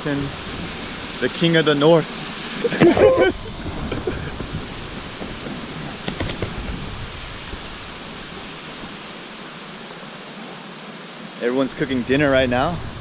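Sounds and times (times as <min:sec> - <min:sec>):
waterfall rushing: 0:00.0 - 0:13.0
low rumble: 0:02.8 - 0:08.1, 0:11.8 - 0:13.0.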